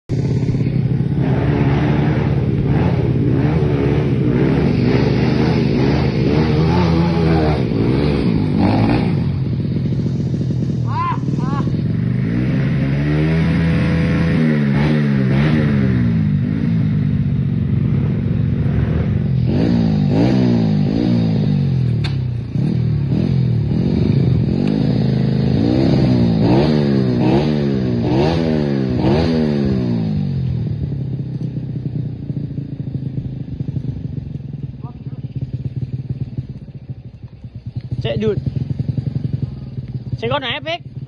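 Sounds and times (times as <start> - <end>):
motorcycle engine revving: 0.0 - 41.0
sharp click: 22.0 - 22.2.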